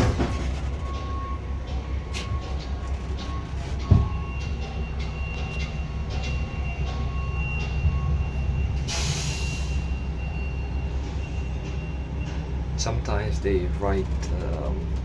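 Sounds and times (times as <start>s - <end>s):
low mechanical rumble: 0.0s - 9.0s.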